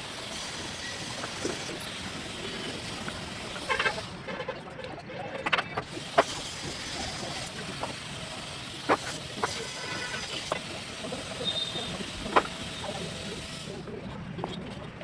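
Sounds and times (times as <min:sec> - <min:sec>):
traffic background noise: 0:00.0 - 0:15.0
trowel tapping bricks: 0:05.4 - 0:13.3.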